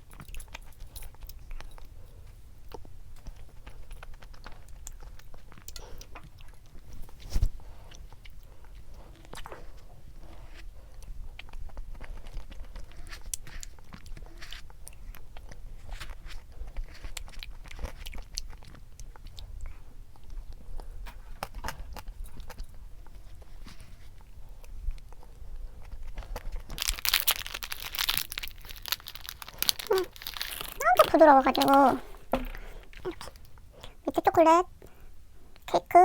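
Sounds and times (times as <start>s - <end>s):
chewing a snack: 0.0s - 34.1s
packaging crinkling: 26.3s - 33.2s.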